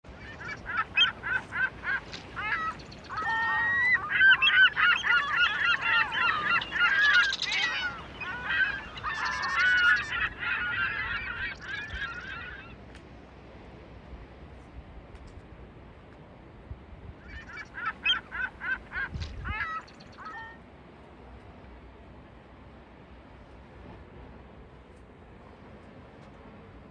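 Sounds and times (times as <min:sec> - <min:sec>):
flock of birds calling: 0:00.2 - 0:12.8, 0:17.3 - 0:20.6.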